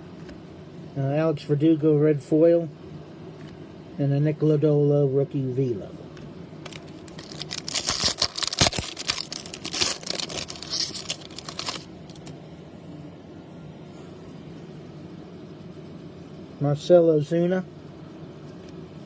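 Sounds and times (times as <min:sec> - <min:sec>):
low background hum: 0:00.0 - 0:19.0
foil wrapper crinkling and tearing: 0:06.6 - 0:12.3.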